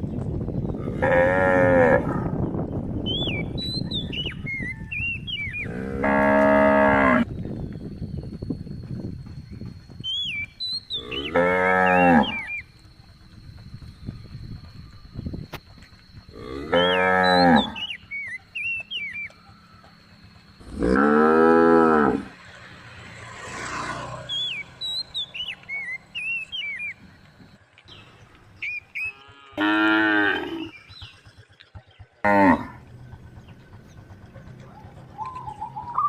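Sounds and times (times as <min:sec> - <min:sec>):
cattle mooing: 0:00.8 - 0:02.3, 0:05.6 - 0:07.3, 0:11.0 - 0:12.5, 0:16.3 - 0:17.9, 0:20.7 - 0:22.4, 0:29.0 - 0:30.7, 0:32.2 - 0:32.8.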